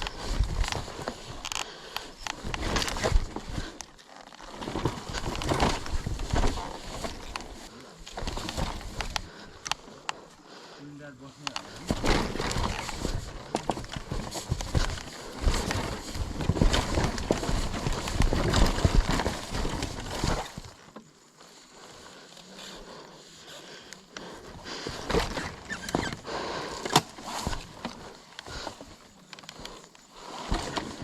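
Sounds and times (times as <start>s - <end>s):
dirt bike clattering on steps: 11.5s - 20.8s.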